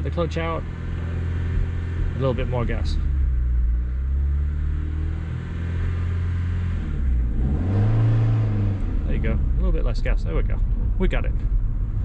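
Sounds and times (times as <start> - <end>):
car engine under light throttle: 0.0 - 12.0.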